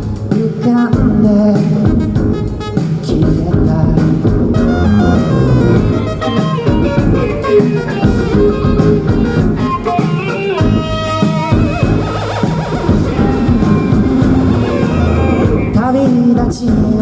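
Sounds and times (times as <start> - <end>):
bass: 0.0 - 9.9, 10.6 - 17.0
drums: 0.0 - 17.0
guitars: 2.2 - 17.0
wavering held note: 4.6 - 15.8.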